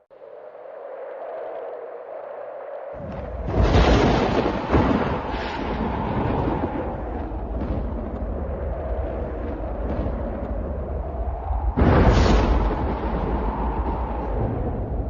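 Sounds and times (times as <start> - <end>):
storm noise: 0.0 - 15.0
thunder rumbling: 3.0 - 15.0.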